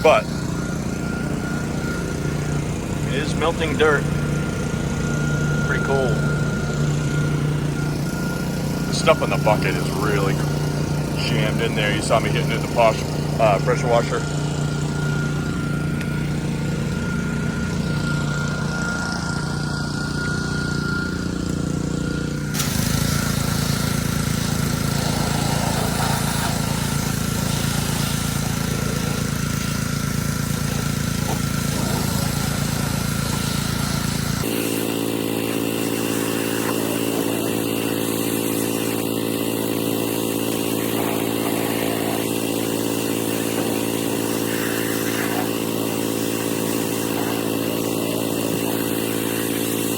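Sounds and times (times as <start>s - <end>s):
small engine running: 0.0s - 49.9s
spray jet hissing: 22.5s - 49.9s.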